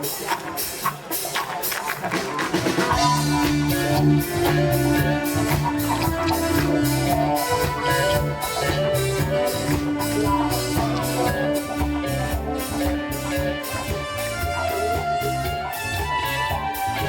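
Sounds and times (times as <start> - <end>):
instrumental funk band music: 0.0 - 17.0
sharp percussion strokes: 0.0 - 17.0
bass line: 2.0 - 17.0.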